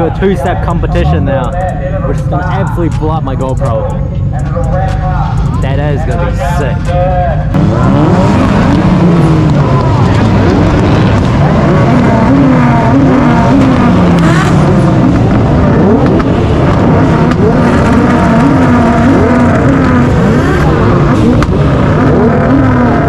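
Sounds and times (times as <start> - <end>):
car engines revving: 0.0 - 23.0.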